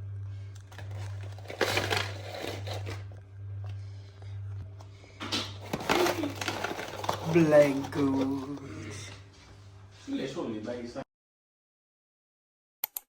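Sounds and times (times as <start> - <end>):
steady low hum: 0.0 - 11.0
rustling and crinkling: 0.6 - 3.2, 5.5 - 9.2.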